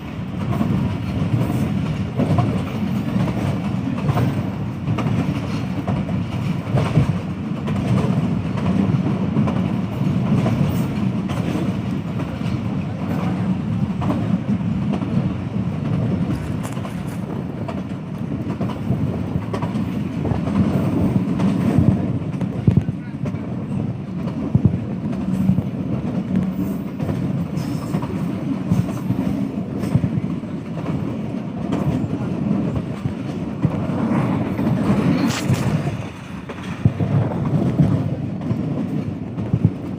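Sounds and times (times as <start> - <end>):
wheels clicking over rail joints: 0.0 - 23.4
passenger train rumbling: 0.0 - 39.9.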